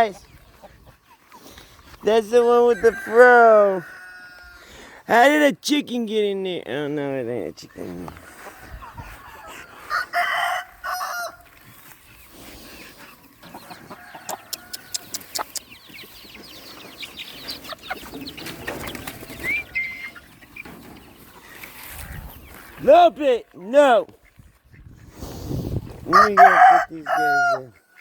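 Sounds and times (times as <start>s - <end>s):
chickens clucking: 0.0s - 28.0s
rooster crowing: 2.7s - 4.6s, 9.8s - 11.4s, 26.1s - 27.7s.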